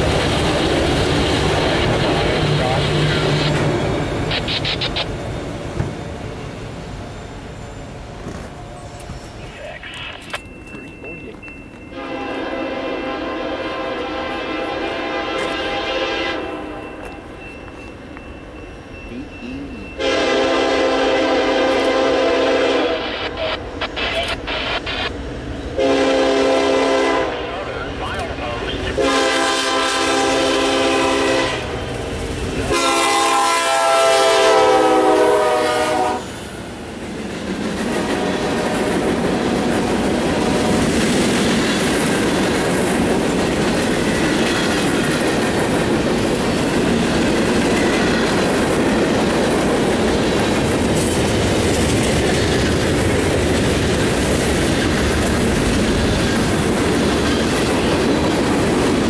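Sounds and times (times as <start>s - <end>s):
wheels clacking on rails: 0.0s - 22.4s, 36.5s - 59.0s
train cars rumbling past: 0.0s - 59.0s
locomotive horn blasts: 11.9s - 16.9s, 20.0s - 23.3s, 25.8s - 27.8s, 28.8s - 31.7s, 32.7s - 36.3s.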